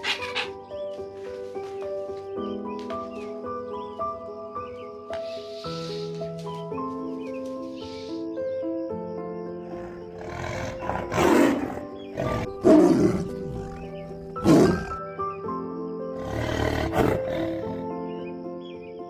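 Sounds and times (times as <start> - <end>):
background music: 0.0 - 19.0
animal roaring: 9.7 - 15.0.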